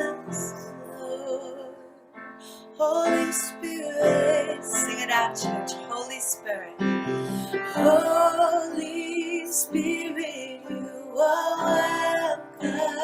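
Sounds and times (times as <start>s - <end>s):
keyboard accompaniment: 0.0s - 13.0s
person singing: 0.0s - 13.0s.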